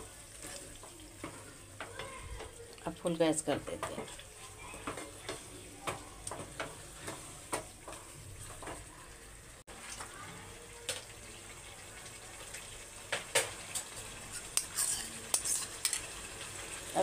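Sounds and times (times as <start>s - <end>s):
gravy sizzling in a pan: 0.0s - 17.0s
wooden spatula scraping pan: 14.0s - 16.1s.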